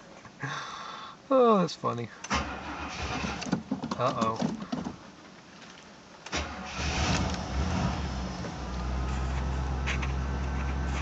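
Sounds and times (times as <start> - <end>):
car engine cranking and starting: 2.2 - 5.1, 6.2 - 11.0
car engine idling: 6.4 - 11.0.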